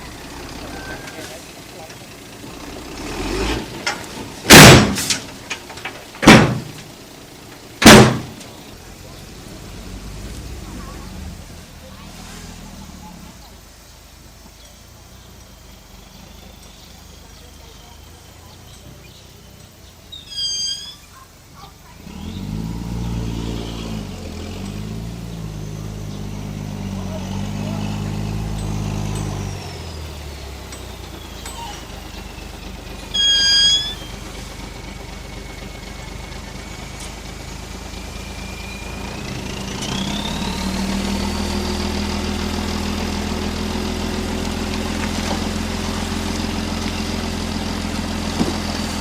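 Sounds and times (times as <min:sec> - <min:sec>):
heavy diesel engine revving: 0:00.0 - 0:49.0
loud bangs: 0:03.5 - 0:06.9, 0:07.8 - 0:08.6
high-pitched squeal: 0:20.1 - 0:21.2, 0:33.0 - 0:34.4.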